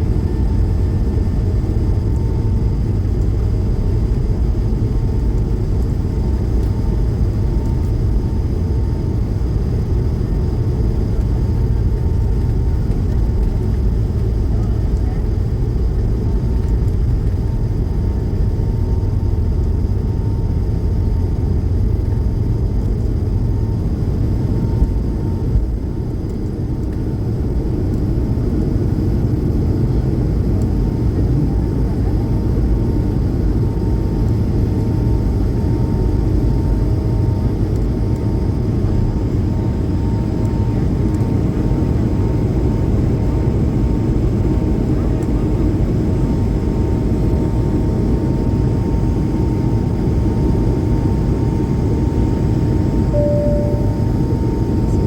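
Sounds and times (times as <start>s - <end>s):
jet engine and airflow rumble: 0.0s - 55.0s
thin steady hum tone: 52.9s - 55.0s.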